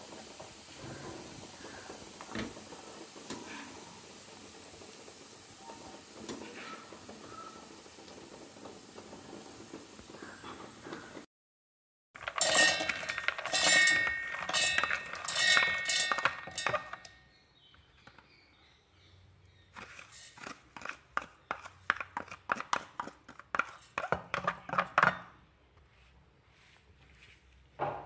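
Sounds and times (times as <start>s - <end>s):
peanuts rattling into metal jar: 12.2s - 17.1s.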